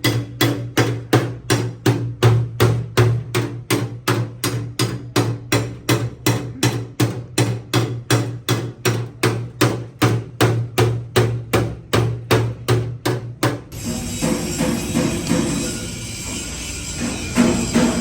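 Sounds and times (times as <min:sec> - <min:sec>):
hammer beating sheet metal: 0:00.0 - 0:18.0.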